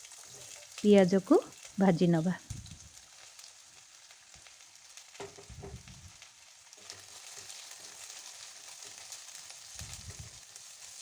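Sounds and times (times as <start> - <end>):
onions sizzling in oil: 0.0 - 11.0
soft thuds: 5.4 - 6.1.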